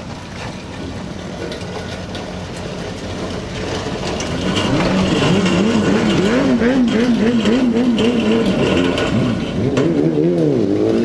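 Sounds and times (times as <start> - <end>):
car engine revving: 3.6 - 11.0.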